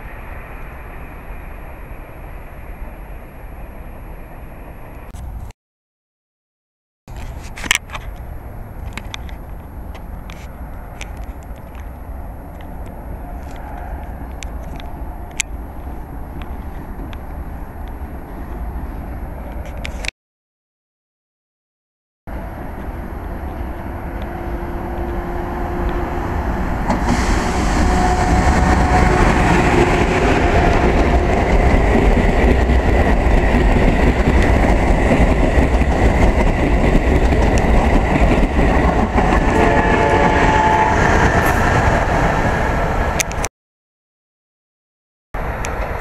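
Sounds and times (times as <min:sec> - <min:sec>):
train passing at speed: 0:00.0 - 0:05.4, 0:08.2 - 0:19.8, 0:22.3 - 0:43.5, 0:45.4 - 0:46.0.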